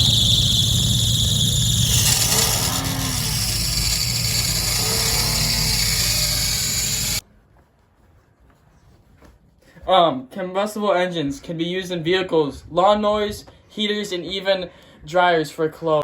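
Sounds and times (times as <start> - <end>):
engine running rough: 0.0 - 7.2
high squeal: 0.0 - 7.2.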